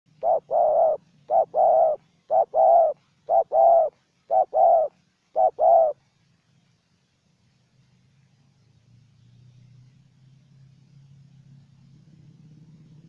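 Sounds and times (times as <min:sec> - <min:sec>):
dove cooing: 0:00.1 - 0:06.0.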